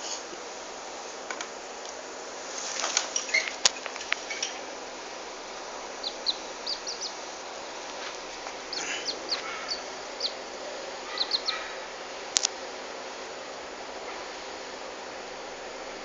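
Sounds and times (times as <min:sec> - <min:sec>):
background hiss: 0:00.0 - 0:16.0
small bird chirping: 0:05.9 - 0:07.3, 0:08.6 - 0:10.4, 0:11.0 - 0:11.8.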